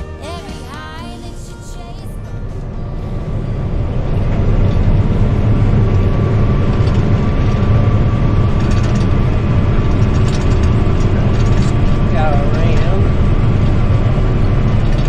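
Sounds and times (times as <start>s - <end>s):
diesel machine droning: 0.0s - 15.0s
thin constant whine: 0.0s - 15.0s.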